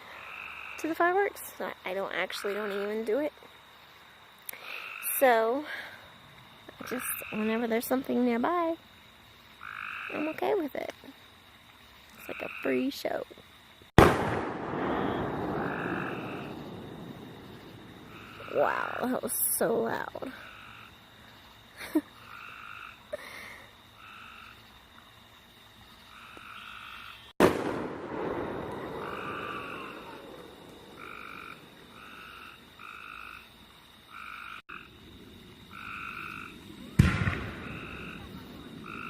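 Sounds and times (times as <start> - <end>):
crickets trilling: 0.0 - 39.0
frogs croaking: 0.0 - 39.0
fireworks bangs and crackling: 13.9 - 18.5, 27.4 - 32.0, 36.6 - 39.0.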